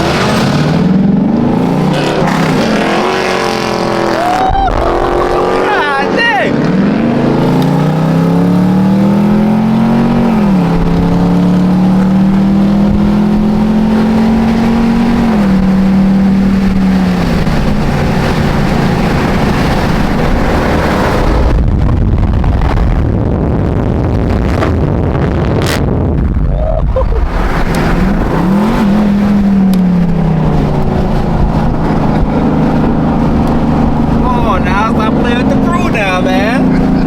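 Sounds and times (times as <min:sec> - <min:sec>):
car engine accelerating: 0:00.0 - 0:37.0
low steady rumble: 0:15.4 - 0:37.0.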